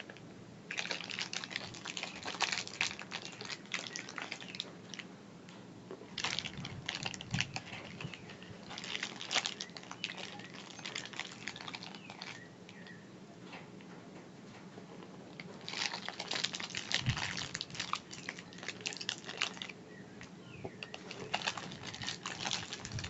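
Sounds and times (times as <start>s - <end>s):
snacks crackling while eaten: 0.0s - 5.1s, 5.9s - 13.0s, 15.0s - 23.0s.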